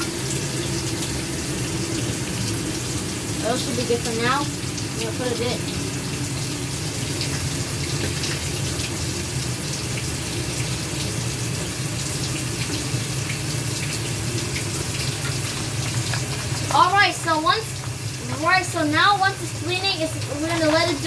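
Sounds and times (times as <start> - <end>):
water running into washing machine: 0.0 - 21.0.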